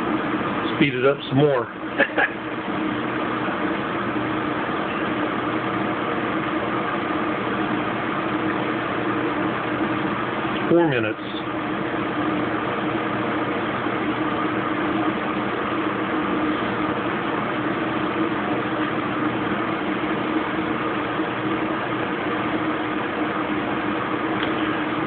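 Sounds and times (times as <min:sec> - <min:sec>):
washing machine spinning: 0:00.0 - 0:25.0.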